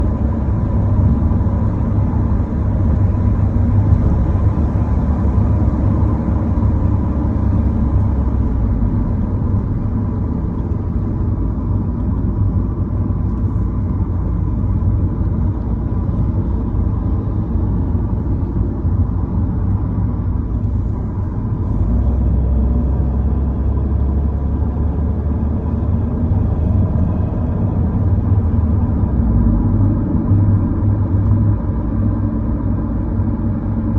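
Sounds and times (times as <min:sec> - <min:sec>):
vehicle road noise rumble: 0:00.0 - 0:33.9.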